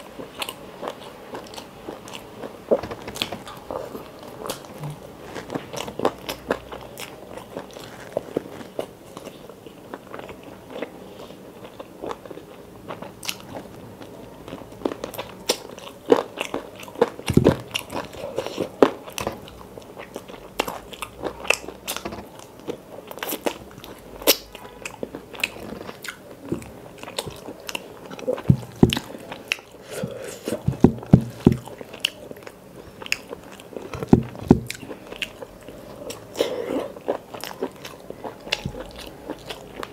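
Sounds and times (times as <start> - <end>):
chewing with wet mouth clicks: 14.5 - 29.8, 31.3 - 39.9.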